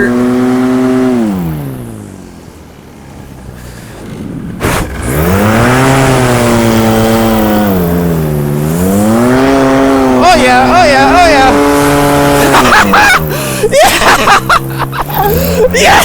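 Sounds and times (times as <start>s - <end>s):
paramotor engine revving: 0.0s - 16.0s
short rush of noise: 3.6s - 5.3s.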